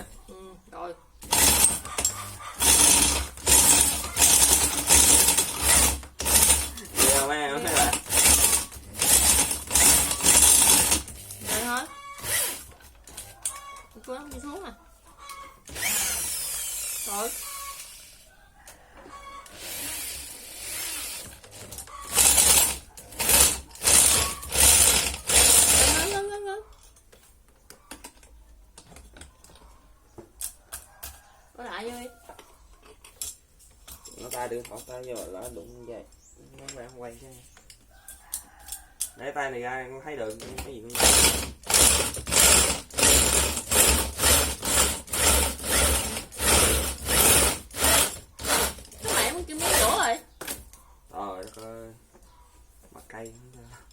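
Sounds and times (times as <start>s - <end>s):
electric drill grinding: 1.2s - 12.8s, 15.6s - 18.2s, 19.5s - 26.3s, 40.9s - 50.1s.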